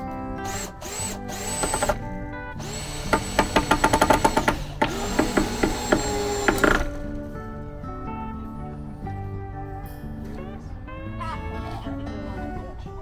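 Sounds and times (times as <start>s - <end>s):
guitar music: 0.0s - 13.0s
cordless drill driving screws: 0.4s - 7.3s.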